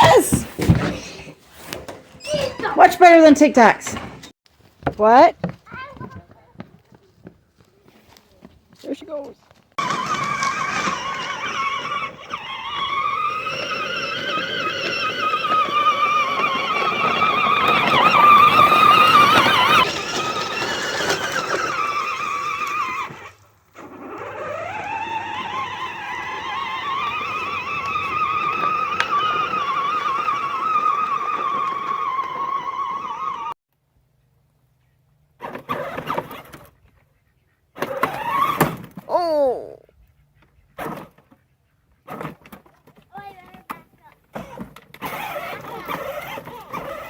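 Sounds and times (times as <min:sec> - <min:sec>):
toy four-wheeler motor whine: 0:09.8 - 0:33.6, 0:35.4 - 0:36.8, 0:37.8 - 0:38.9, 0:44.4 - 0:47.0.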